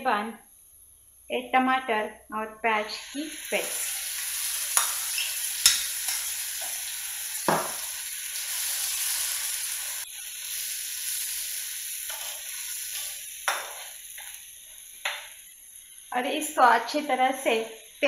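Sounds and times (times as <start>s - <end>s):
paste sizzling in oil: 2.9s - 18.0s
spoon knocking against pan: 4.8s - 6.8s, 7.4s - 7.8s.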